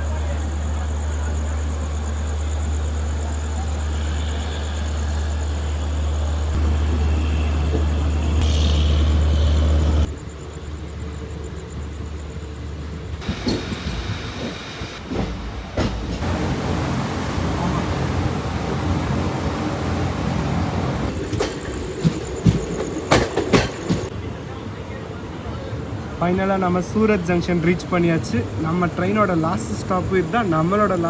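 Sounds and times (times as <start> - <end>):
train rumbling on track: 0.0 - 31.0.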